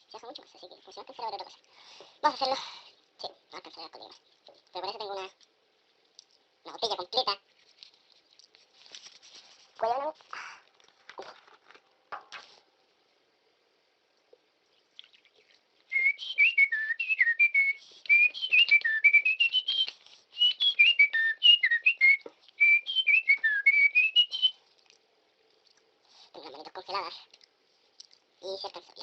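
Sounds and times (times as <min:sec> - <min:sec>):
person whistling a tune: 0:15.9 - 0:24.6.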